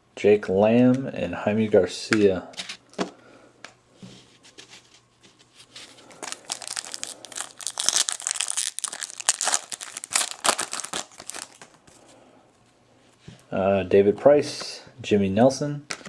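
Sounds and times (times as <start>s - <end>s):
foil wrapper tearing and crinkling: 5.8s - 11.8s.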